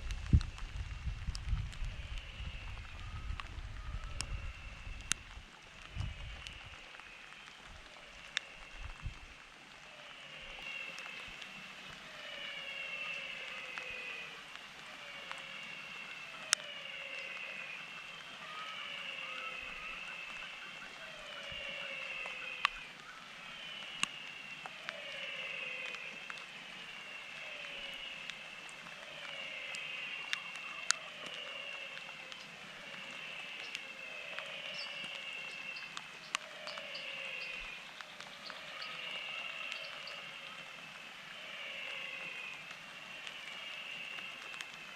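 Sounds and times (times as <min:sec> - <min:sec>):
background hiss: 0:00.0 - 0:44.9
water dripping: 0:00.0 - 0:44.9
high chorus of animal calls: 0:09.8 - 0:44.8.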